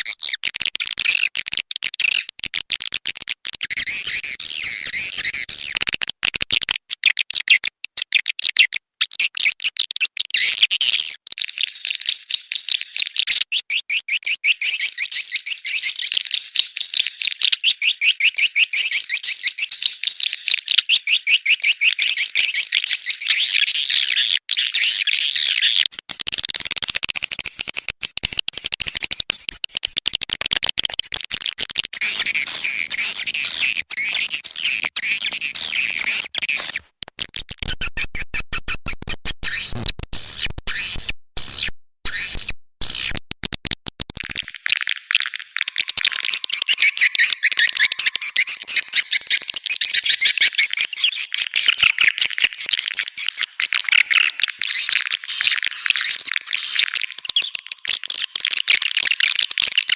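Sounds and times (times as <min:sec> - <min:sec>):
fast clicking pulses: 0:42.8 - 0:50.8
swiftlets twittering: 0:44.7 - 0:51.7.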